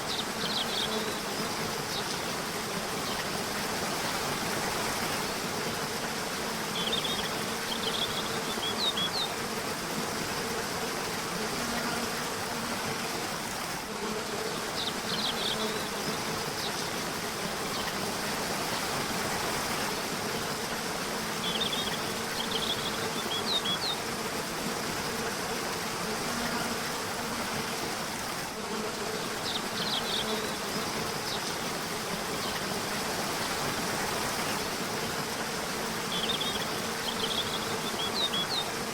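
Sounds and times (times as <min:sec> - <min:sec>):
river water flowing: 0:12.0 - 0:38.9.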